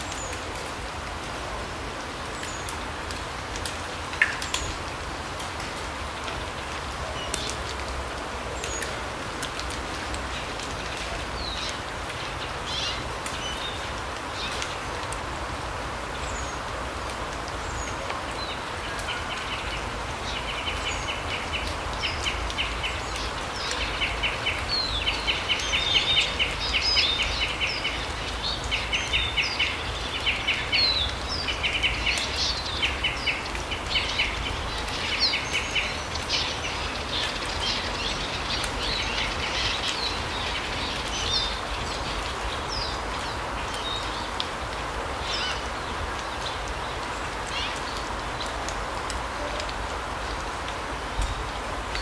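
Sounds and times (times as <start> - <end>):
small birds trilling and chirping: 17.6 - 48.6.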